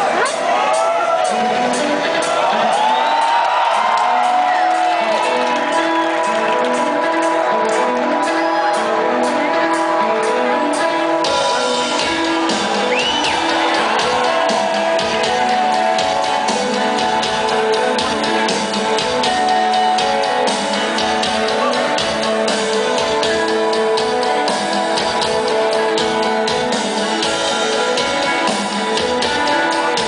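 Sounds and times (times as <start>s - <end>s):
electric guitars playing melody: 1.2s - 30.0s
ticking drum beat: 11.2s - 30.0s.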